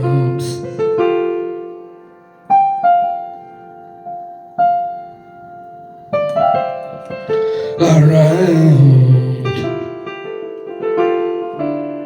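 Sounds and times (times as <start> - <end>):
piano chords: 0.0 - 12.0
wavering held voice-like note: 7.8 - 9.7.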